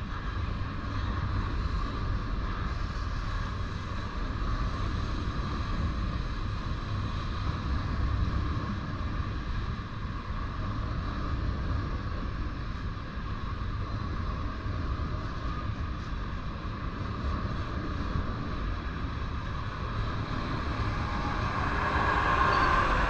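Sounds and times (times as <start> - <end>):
train wheels rumbling on rails: 17.6 - 23.0.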